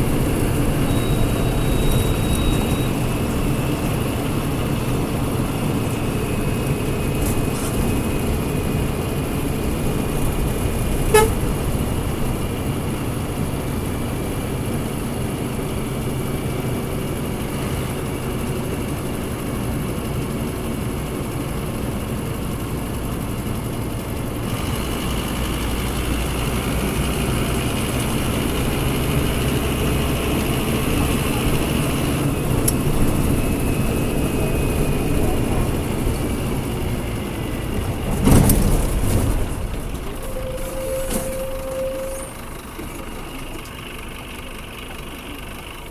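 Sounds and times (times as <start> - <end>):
bus diesel engine running: 0.0 - 45.9
short beep: 0.7 - 3.3, 40.2 - 42.5.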